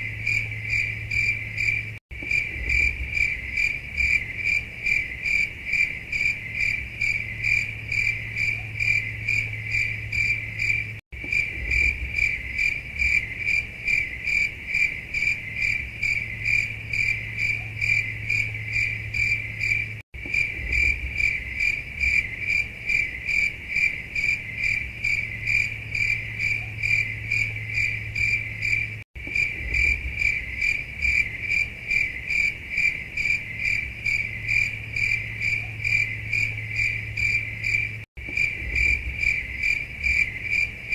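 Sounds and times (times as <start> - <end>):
low steady hum: 0.0 - 13.9
crickets chirping: 0.0 - 40.9.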